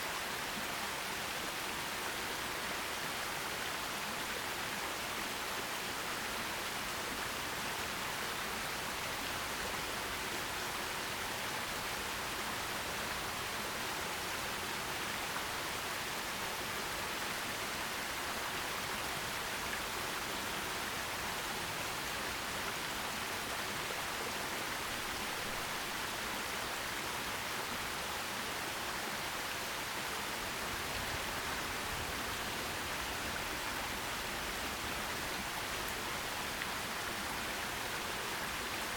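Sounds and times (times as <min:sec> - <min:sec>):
stream flowing over rocks: 0:00.0 - 0:38.9.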